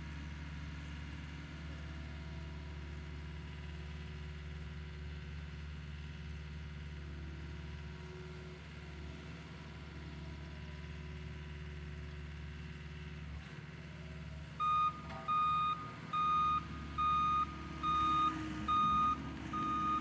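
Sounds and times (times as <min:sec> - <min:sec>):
power rake engine running: 0:09.0 - 0:20.0.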